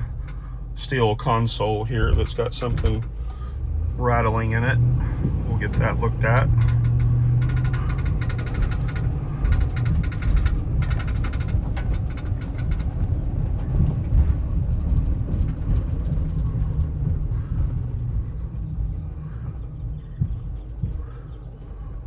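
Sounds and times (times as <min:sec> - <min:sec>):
road noise: 0:00.0 - 0:22.0
truck engine rumble: 0:00.0 - 0:22.0
loose object rattling: 0:05.1 - 0:19.1.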